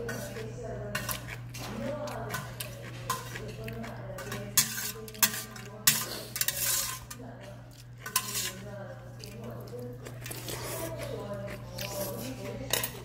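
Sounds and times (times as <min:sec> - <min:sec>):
utensils clinking against bowl: 0:00.0 - 0:13.0.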